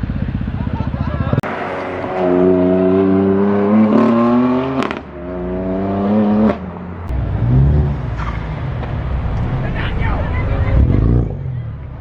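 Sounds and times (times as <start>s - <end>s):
engine accelerating hard: 0.0s - 8.4s.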